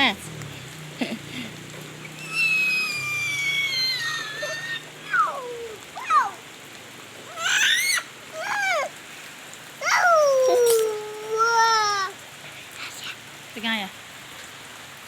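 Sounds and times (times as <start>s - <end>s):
steady rain falling: 0.0s - 15.0s
young child squealing: 2.1s - 6.5s, 7.3s - 9.0s, 9.8s - 12.2s.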